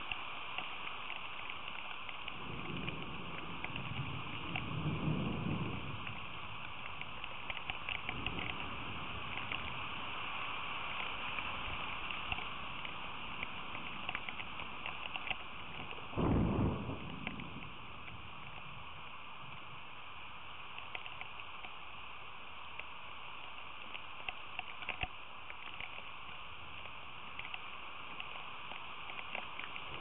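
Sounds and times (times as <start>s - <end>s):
steady rain: 0.0s - 30.0s
loud low thump: 16.1s - 17.8s.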